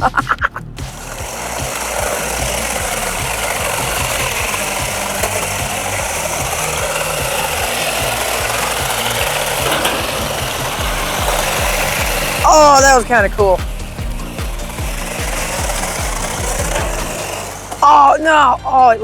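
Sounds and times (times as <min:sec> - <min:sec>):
plastic tyres sliding: 0:00.0 - 0:19.0
small electric motors whining: 0:00.5 - 0:18.6.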